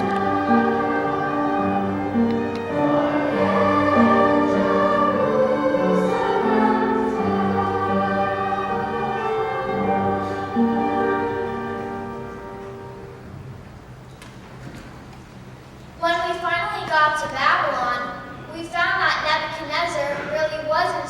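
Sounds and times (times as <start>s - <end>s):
children's choir singing: 0.0s - 13.0s.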